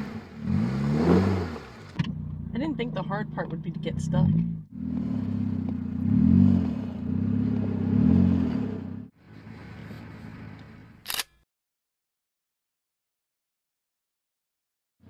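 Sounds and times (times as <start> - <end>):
car engine revving: 0.0 - 10.8.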